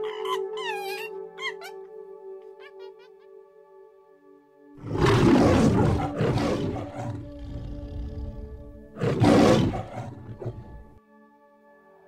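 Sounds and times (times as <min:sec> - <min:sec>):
background music: 0:00.0 - 0:12.0
big cat roaring: 0:04.8 - 0:11.0.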